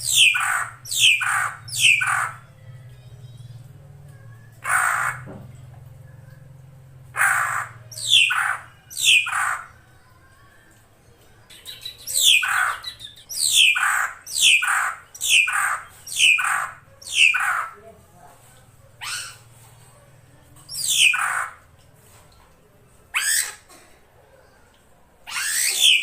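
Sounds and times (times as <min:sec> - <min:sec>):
bird harsh downsweeping calls: 0:00.1 - 0:02.4, 0:04.6 - 0:05.2, 0:07.1 - 0:09.7, 0:12.1 - 0:17.8, 0:20.7 - 0:21.6.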